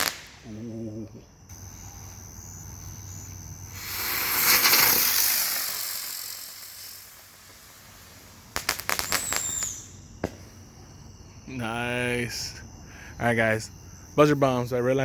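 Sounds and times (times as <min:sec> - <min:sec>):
firework crackling pops: 0:00.0 - 0:00.5, 0:03.3 - 0:10.6
spinning firework hiss: 0:00.0 - 0:00.5, 0:01.5 - 0:10.7.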